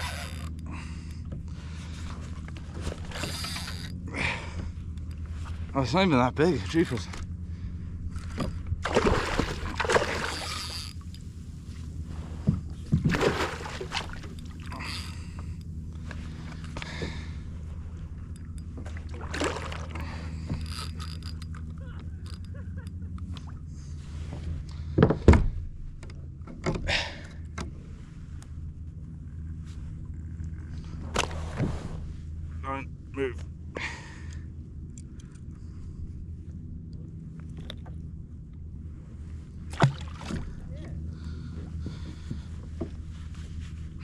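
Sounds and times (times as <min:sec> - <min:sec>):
low hum: 0:00.0 - 0:44.0
water splashing against kayak: 0:08.2 - 0:17.2, 0:18.8 - 0:20.7, 0:39.7 - 0:40.7.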